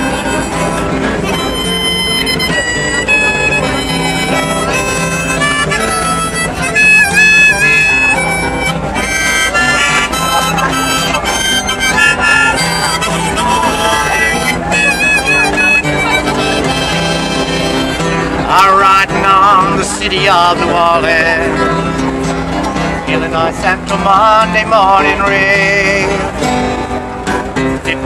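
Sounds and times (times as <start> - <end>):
harmonica playing: 0.0 - 26.9.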